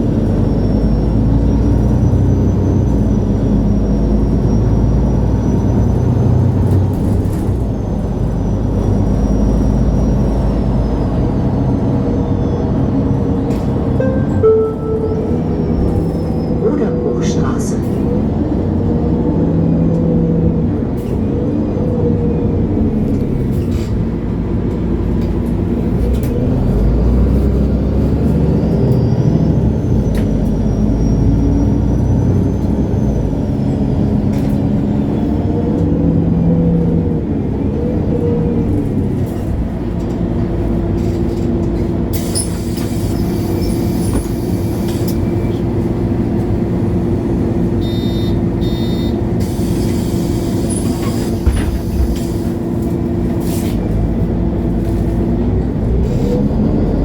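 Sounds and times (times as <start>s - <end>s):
bus diesel engine: 0.0s - 57.0s.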